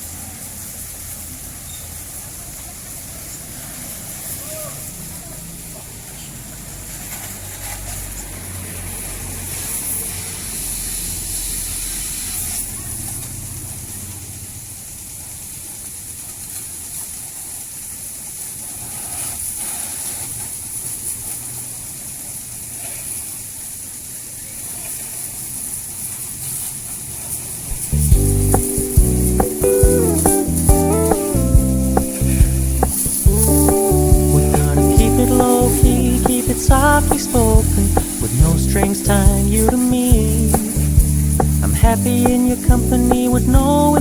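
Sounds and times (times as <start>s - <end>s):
water spraying hiss: 0.0s - 44.0s
low hum: 27.8s - 44.0s.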